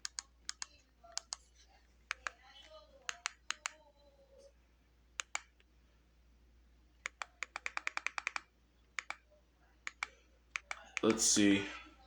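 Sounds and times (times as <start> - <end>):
typing on computer keyboard: 0.0 - 1.4, 2.1 - 2.4, 3.1 - 3.8, 5.2 - 5.5, 7.0 - 9.2, 9.8 - 11.1.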